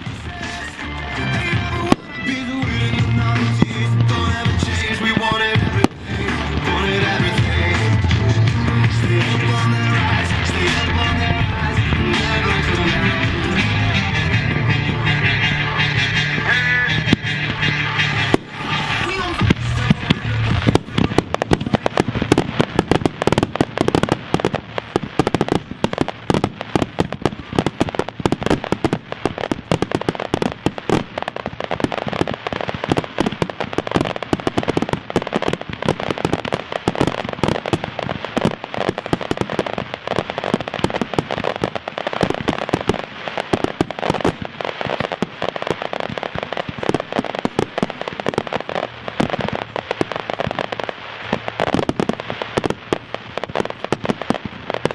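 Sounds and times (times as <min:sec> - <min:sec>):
firework bangs and crackling: 0:00.0 - 0:54.9.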